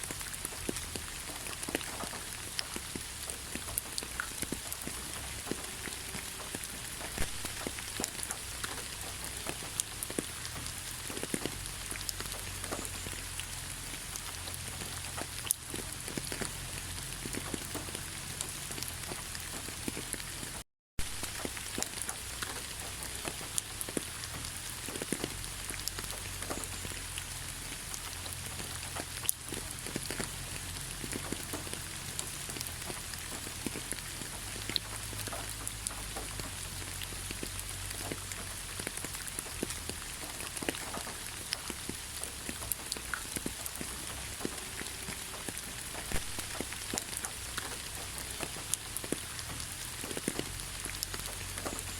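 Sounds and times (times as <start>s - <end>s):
rain drops ticking on surface: 0.0s - 51.9s.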